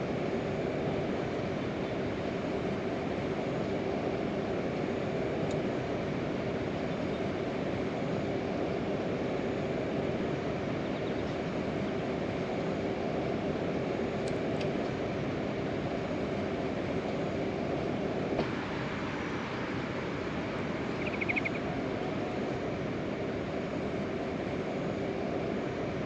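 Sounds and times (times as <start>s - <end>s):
faint constant hum: 0.0s - 26.0s
heavy rain: 18.4s - 20.8s.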